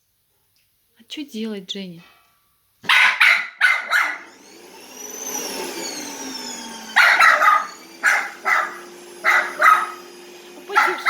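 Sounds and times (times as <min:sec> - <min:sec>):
dog barking: 0:02.8 - 0:04.3, 0:06.9 - 0:10.1, 0:10.7 - 0:11.0
vacuum cleaner motor whine: 0:03.8 - 0:11.0.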